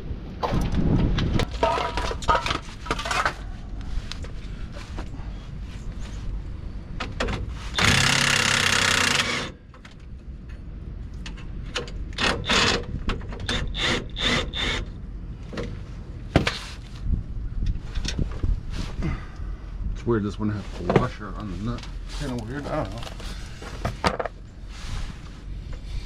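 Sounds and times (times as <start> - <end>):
impact wrench running: 7.8 - 9.6.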